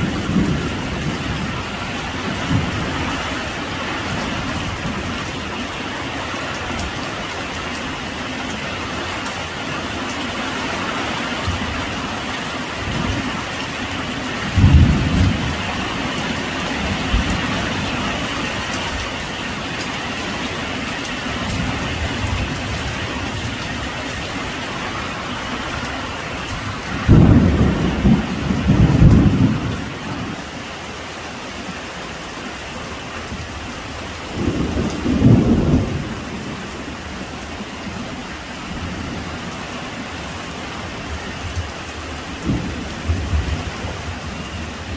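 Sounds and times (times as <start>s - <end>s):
heavy rain: 0.0s - 44.9s
thunder rumbling: 14.3s - 19.0s, 26.7s - 30.4s, 34.4s - 36.8s, 42.4s - 44.9s.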